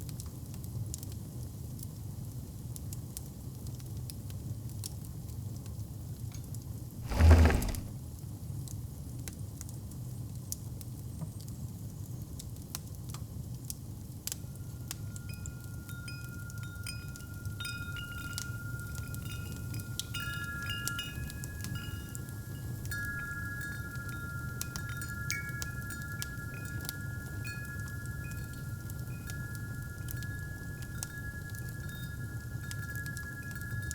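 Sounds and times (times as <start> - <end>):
wind chimes ringing: 15.9 - 33.9.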